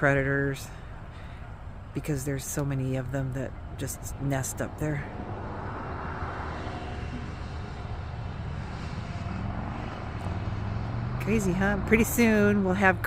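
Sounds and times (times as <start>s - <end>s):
engine drone: 4.6s - 13.0s.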